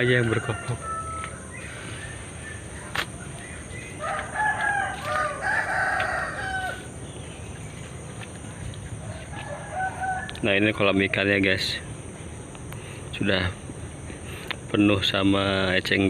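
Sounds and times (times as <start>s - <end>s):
rooster crowing: 0.0s - 7.4s, 9.0s - 11.5s.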